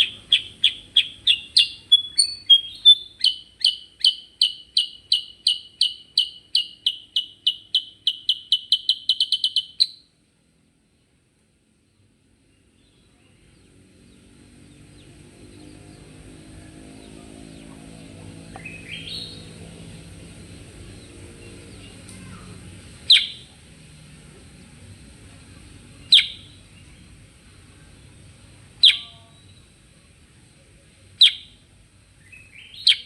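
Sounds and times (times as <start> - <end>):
bird chirping: 0.0 - 10.1, 11.9 - 19.9, 23.0 - 23.5, 26.0 - 27.0, 28.8 - 29.7, 31.2 - 33.0
low steady hum: 0.0 - 33.0
faint high hiss: 18.5 - 32.9.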